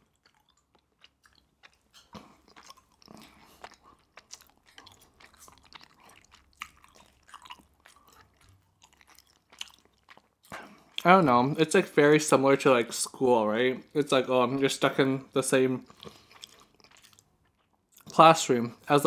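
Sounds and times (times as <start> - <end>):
chewing prawn with shell: 0.0 - 11.1, 15.8 - 18.2.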